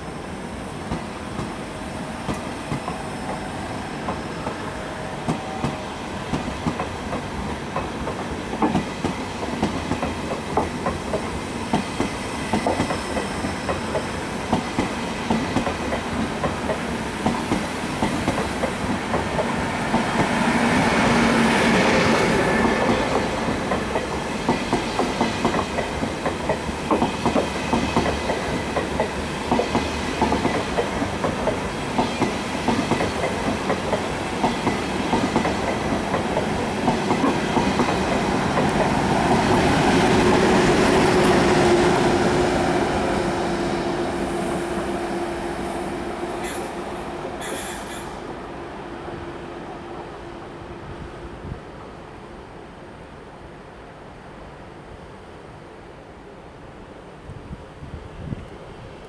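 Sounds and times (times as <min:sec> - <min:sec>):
train wheels clicking over rail joints: 0:05.2 - 0:20.3, 0:22.2 - 0:42.1.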